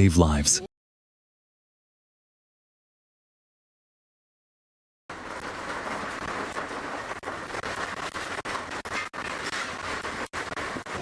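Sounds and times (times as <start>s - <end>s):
heavy rain: 5.1s - 11.0s.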